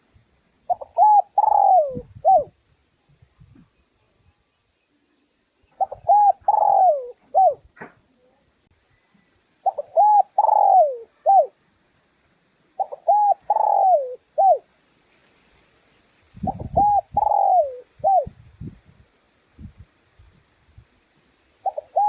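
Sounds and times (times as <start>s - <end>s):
dove cooing: 0.6s - 2.6s, 5.8s - 7.7s, 9.6s - 11.6s, 12.8s - 14.7s, 16.4s - 18.4s, 21.6s - 22.0s.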